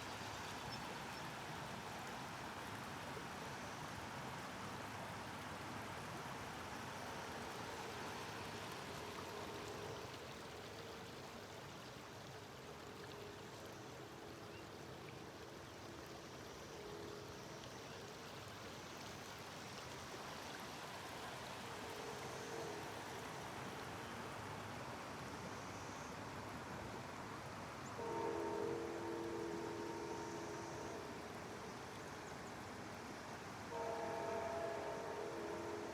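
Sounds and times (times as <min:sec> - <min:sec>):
distant train horn: 0:07.7 - 0:10.4, 0:21.3 - 0:23.5, 0:27.8 - 0:31.8, 0:33.6 - 0:35.9.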